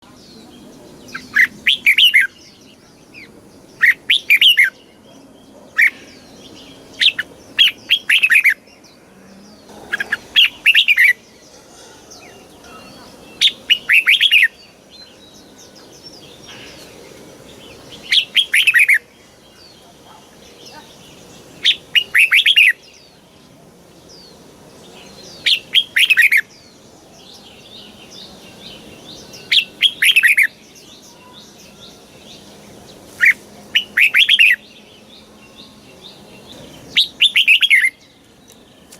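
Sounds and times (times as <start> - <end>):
bulbul warbling song: 9.6 - 23.1, 24.9 - 38.9.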